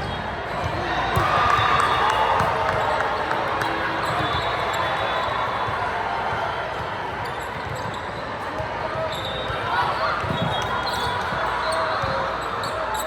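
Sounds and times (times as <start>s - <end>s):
shoe squeaks: 10.2s - 13.0s.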